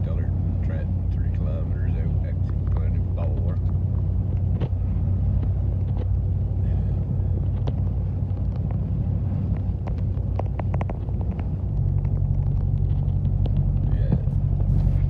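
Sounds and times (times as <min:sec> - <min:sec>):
engine and road rumble: 0:00.0 - 0:15.0
higher hum: 0:00.0 - 0:15.0
light ticks and clicks: 0:02.2 - 0:06.2, 0:07.4 - 0:14.7.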